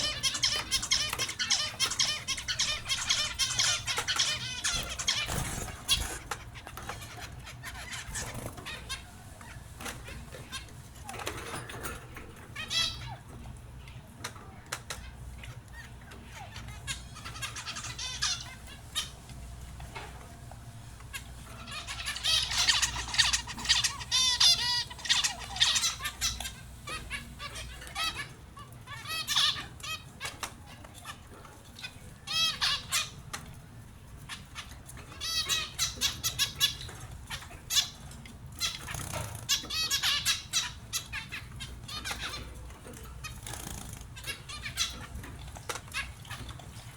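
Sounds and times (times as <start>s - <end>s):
finches chirping: 0.0s - 11.5s, 15.0s - 19.3s, 21.1s - 31.2s, 34.3s - 46.6s.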